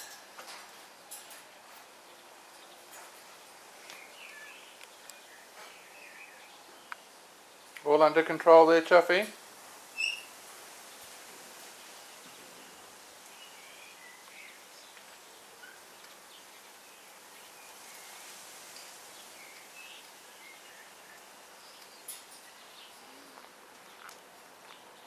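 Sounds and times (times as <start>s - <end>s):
faint outdoor hiss: 0.0s - 25.0s
bird chirps: 10.0s - 10.3s.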